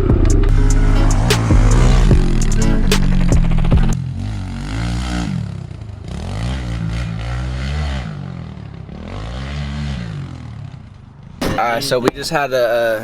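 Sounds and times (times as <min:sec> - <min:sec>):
small motorbike engine revving: 0:00.0 - 0:08.3.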